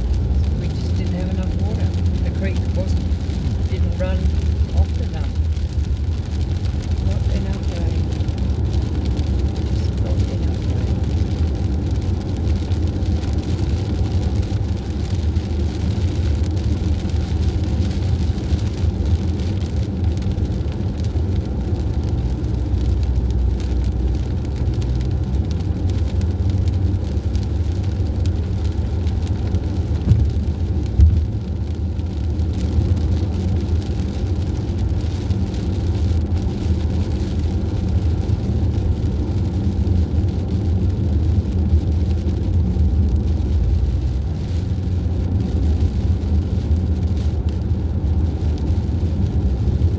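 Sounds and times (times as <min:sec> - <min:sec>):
vehicle engine and road rumble: 0:00.0 - 0:49.9.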